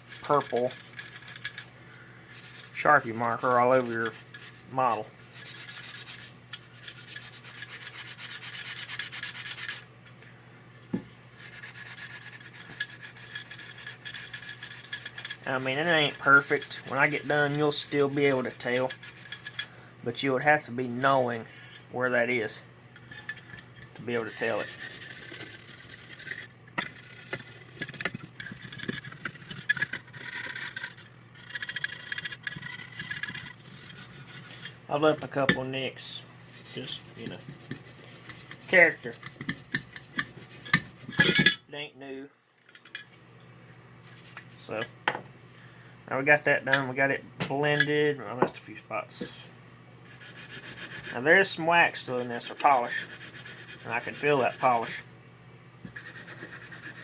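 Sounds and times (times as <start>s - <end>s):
brush scrubbing: 0.0s - 9.9s, 11.3s - 19.7s, 24.0s - 41.2s, 44.0s - 44.8s, 50.1s - 55.0s, 55.9s - 57.0s
scratchy rubbing on toy: 0.0s - 9.9s, 11.3s - 19.7s, 24.1s - 34.8s, 36.0s - 41.3s, 44.0s - 44.7s, 50.0s - 55.0s, 55.9s - 57.0s.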